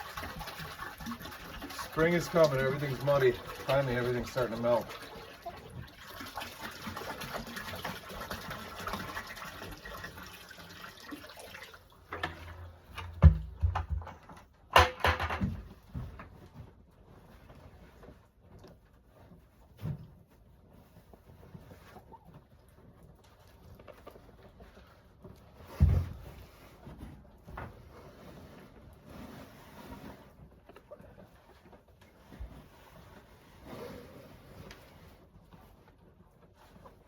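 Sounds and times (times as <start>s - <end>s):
water running: 0.0s - 12.8s
sharp thumps and knocks: 13.0s - 16.2s.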